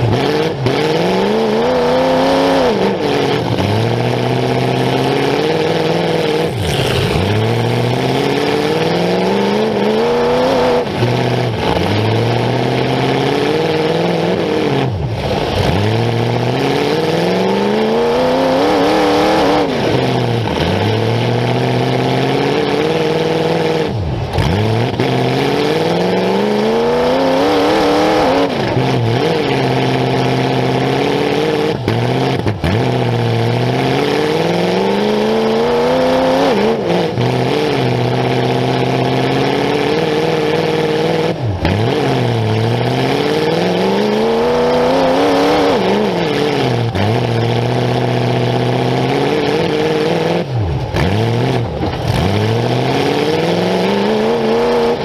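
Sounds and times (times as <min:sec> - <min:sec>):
unmuffled car engine revving: 0:00.0 - 0:55.0.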